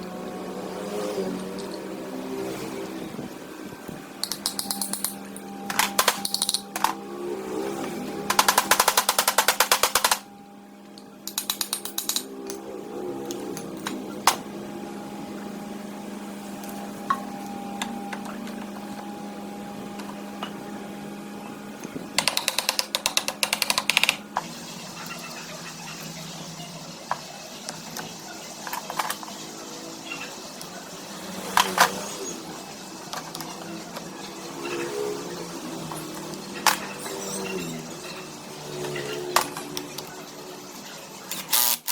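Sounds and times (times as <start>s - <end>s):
steady hum: 0.0s - 41.9s
rapid mechanical clicking: 8.3s - 10.3s, 22.2s - 24.2s.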